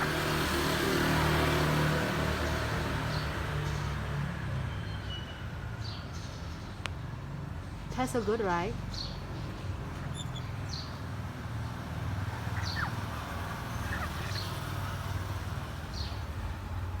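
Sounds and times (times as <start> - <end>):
high bird chirps: 8.9 - 11.1, 12.3 - 15.0.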